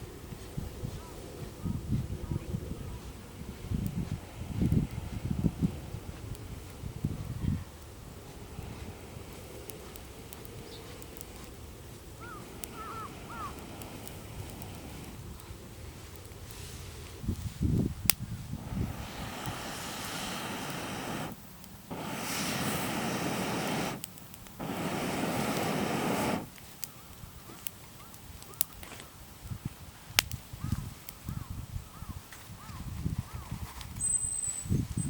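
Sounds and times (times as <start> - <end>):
wood fire crackling and popping: 2.6 - 31.3
rushing whooshes: 18.6 - 26.5.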